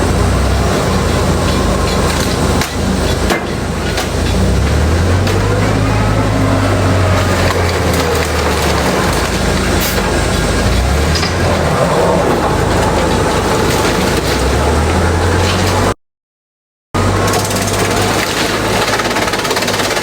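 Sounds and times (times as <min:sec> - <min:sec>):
low motor hum: 0:00.0 - 0:16.0
shredder grinding and crunching: 0:00.0 - 0:16.0, 0:17.0 - 0:20.0.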